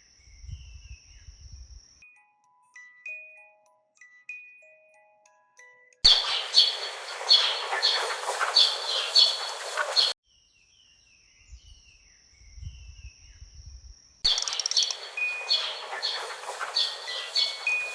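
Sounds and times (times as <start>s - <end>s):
wind hiss: 6.1s - 10.2s, 11.5s - 17.9s
faint bird chirps: 6.1s - 17.9s.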